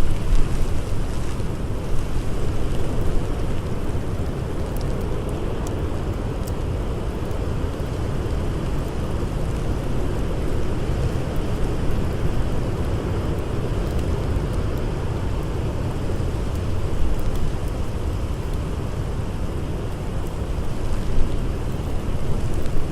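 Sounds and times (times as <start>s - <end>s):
blizzard wind blowing: 0.0s - 5.9s
campfire crackles: 0.0s - 22.9s.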